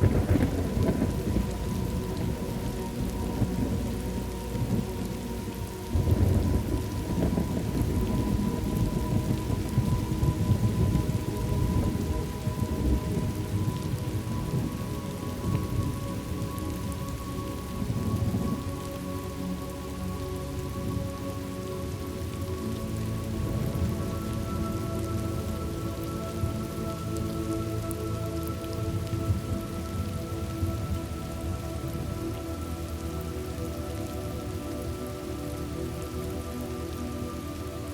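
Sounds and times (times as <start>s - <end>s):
rolling thunder: 0.0s - 5.1s, 5.9s - 16.0s
ambient pad tones: 0.0s - 37.9s
steady rain: 0.0s - 37.9s.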